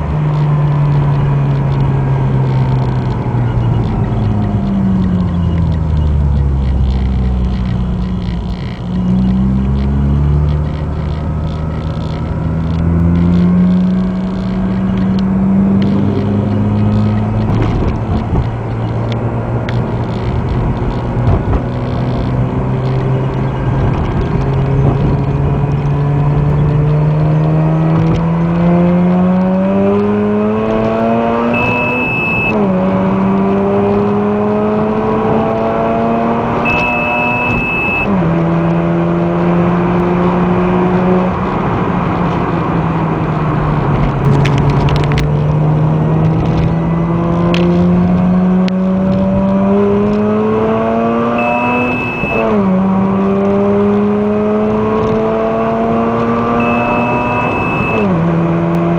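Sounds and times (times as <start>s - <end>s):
rotary engine accelerating: 0.0s - 58.9s
short electronic beep: 31.0s - 32.6s, 36.0s - 38.3s, 50.8s - 52.6s, 56.0s - 58.2s.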